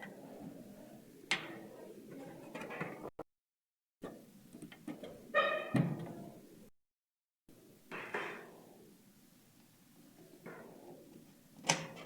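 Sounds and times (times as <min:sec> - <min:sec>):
brief squeak-like ring: 0:05.4 - 0:05.8.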